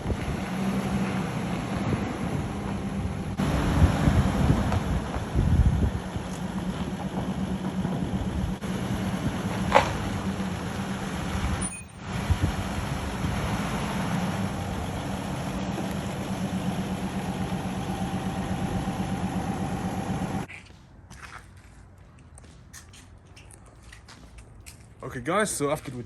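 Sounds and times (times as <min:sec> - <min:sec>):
pickup engine running: 0:00.0 - 0:20.5.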